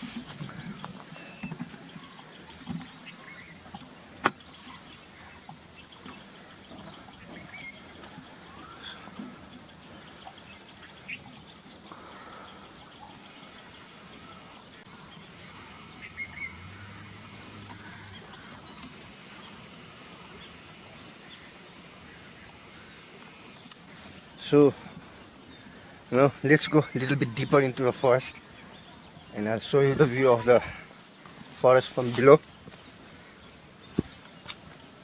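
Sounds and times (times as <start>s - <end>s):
bird chirps: 0.4s - 30.9s
steady high drone: 11.9s - 23.7s.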